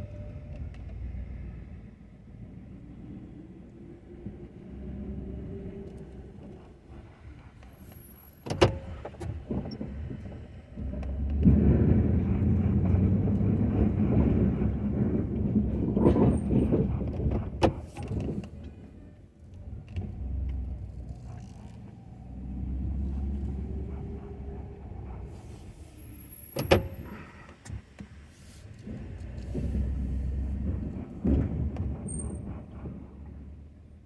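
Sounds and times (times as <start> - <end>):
truck engine running: 4.2 - 34.0
sharp clunks: 26.5 - 27.3.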